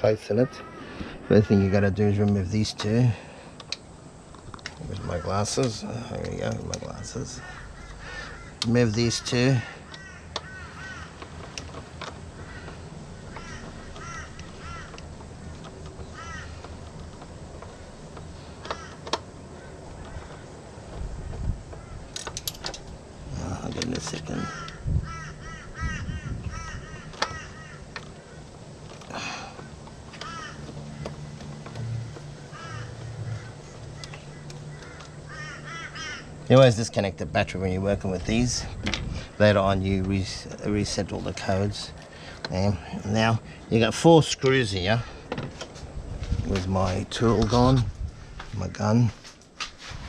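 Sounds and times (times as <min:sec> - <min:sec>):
steady low hum: 0:00.0 - 0:50.0
crow-like caws: 0:00.2 - 0:02.0, 0:04.8 - 0:06.2, 0:06.8 - 0:11.5, 0:12.3 - 0:16.8, 0:18.6 - 0:20.8, 0:21.7 - 0:22.2, 0:24.3 - 0:36.5
sharp clicks and knocks: 0:11.1 - 0:19.3, 0:19.9 - 0:23.0.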